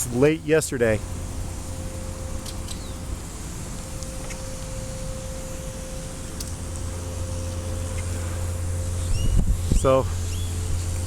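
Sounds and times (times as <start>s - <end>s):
road traffic rumble: 0.0s - 11.0s
faint bird chirp: 2.4s - 3.1s, 7.4s - 9.5s, 10.2s - 11.0s.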